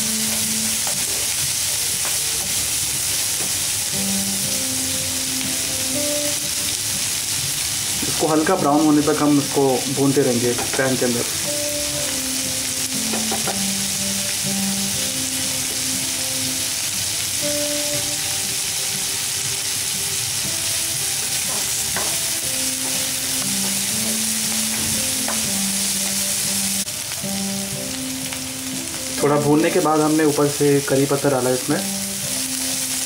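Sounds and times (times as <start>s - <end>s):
onions sizzling in hot oil: 0.0s - 33.0s
spatula knocking on pan: 3.4s - 3.6s, 10.5s - 11.2s, 13.0s - 13.8s, 21.4s - 26.2s.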